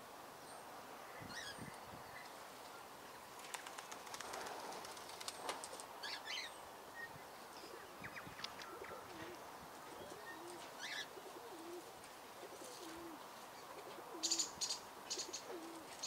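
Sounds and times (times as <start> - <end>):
small birds chirping: 12.4 - 16.0.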